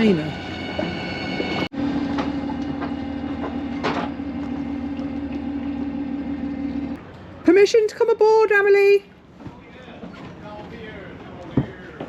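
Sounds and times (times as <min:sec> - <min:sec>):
outboard motor running: 0:01.8 - 0:07.0.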